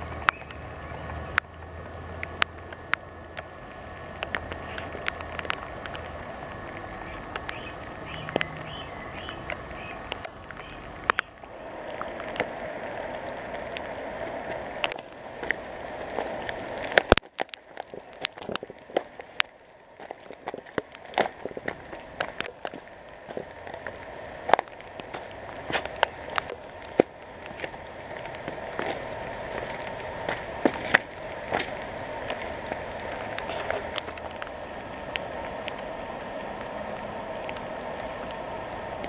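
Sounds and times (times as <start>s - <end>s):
rain hiss: 0.0s - 39.0s
sharp taps and crackles: 4.2s - 11.4s, 14.8s - 15.6s, 16.3s - 29.0s, 29.6s - 35.8s.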